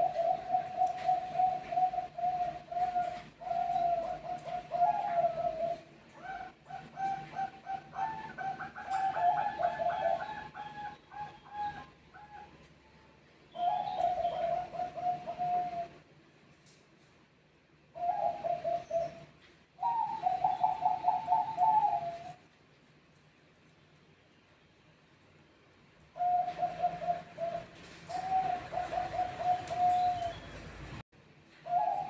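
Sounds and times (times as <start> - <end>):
doves cooing: 0.0 - 12.7, 13.5 - 16.1, 17.9 - 22.5, 26.1 - 31.0, 31.6 - 32.0.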